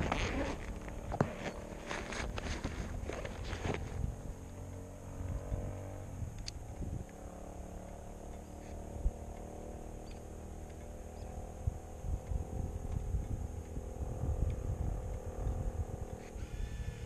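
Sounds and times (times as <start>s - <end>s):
motorcycle engine idling: 0.0s - 17.0s
faint clicks: 7.8s - 11.4s.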